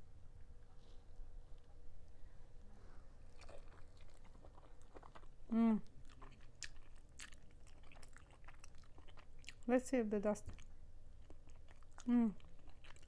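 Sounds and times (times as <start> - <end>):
wet chewing clicks and smacks: 3.3 - 9.7, 10.4 - 13.0.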